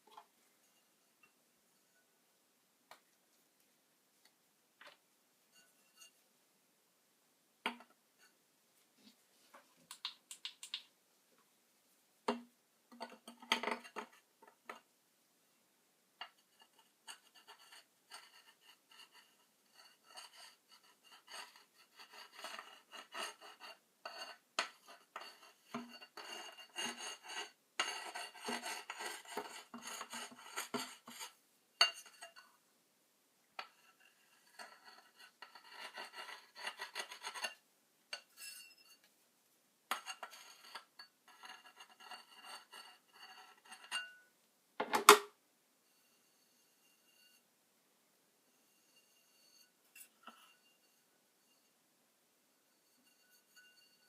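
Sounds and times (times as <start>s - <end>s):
scraping and rubbing: 16.4s - 32.5s, 33.6s - 37.6s, 39.9s - 44.1s.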